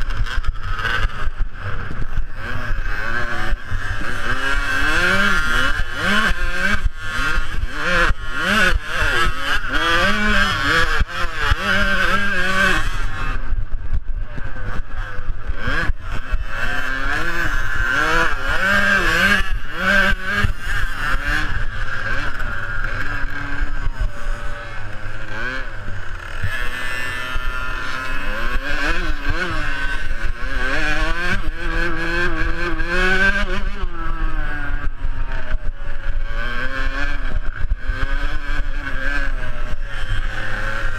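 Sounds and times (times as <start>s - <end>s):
motocross bikes revving: 0.0s - 40.9s.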